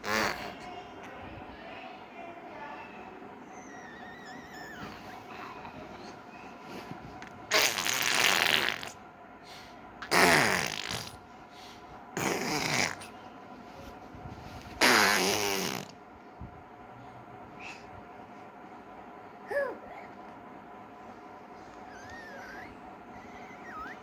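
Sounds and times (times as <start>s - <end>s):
baby blowing raspberries: 0.0s - 0.7s, 7.5s - 9.0s, 10.0s - 11.2s, 12.2s - 13.2s, 14.7s - 16.0s.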